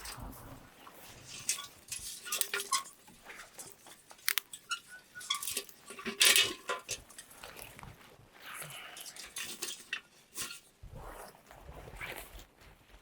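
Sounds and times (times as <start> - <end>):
small hard objects clinking: 1.3 - 7.8.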